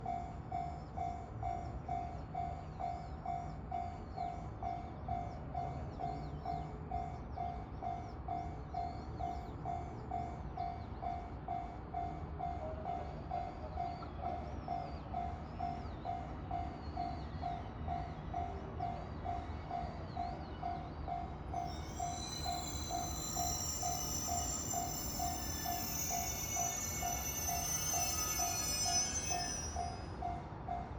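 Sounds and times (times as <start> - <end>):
level crossing warning bell: 5.6 - 30.9.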